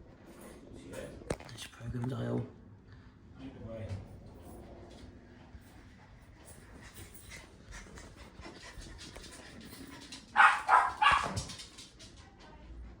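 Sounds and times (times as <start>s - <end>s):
dog barking: 10.4s - 11.6s.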